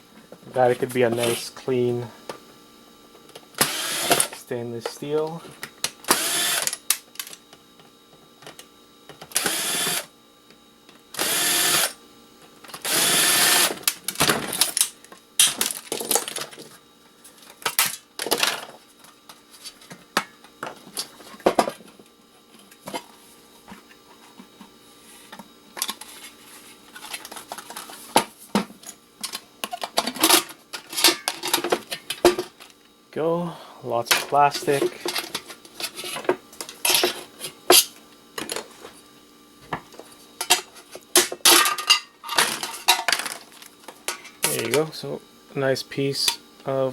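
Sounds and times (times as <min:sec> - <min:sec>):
cordless drill whirring: 0:03.6 - 0:04.3, 0:06.1 - 0:06.8, 0:09.3 - 0:10.1, 0:11.2 - 0:12.0, 0:12.8 - 0:13.8.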